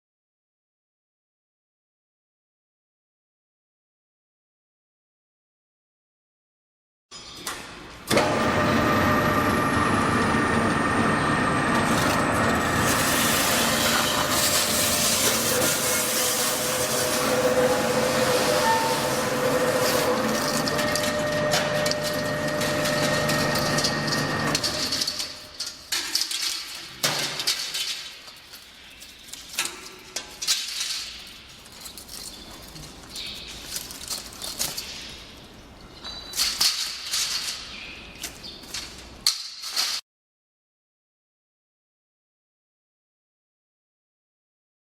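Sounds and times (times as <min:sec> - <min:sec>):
stripping machine humming: 0:08.1 - 0:25.4.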